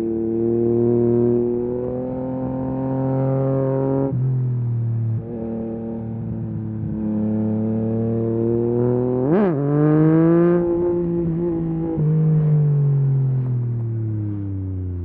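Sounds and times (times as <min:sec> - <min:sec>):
motorcycle engine revving: 0:05.2 - 0:15.0.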